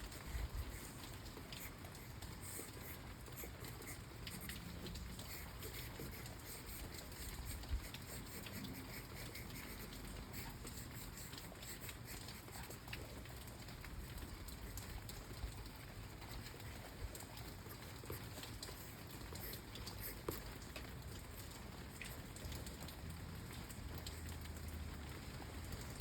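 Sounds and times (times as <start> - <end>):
steady hiss: 0.0 - 20.7
light tapping and pattering: 0.0 - 26.0.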